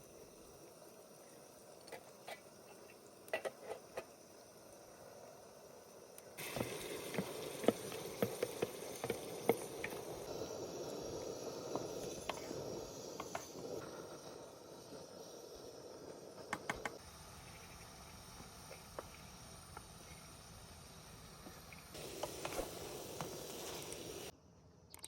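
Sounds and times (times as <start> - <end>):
food sizzling in a pan: 0.0 - 24.3
sharp pops and crackles: 6.2 - 15.3, 16.0 - 20.3, 21.4 - 24.3.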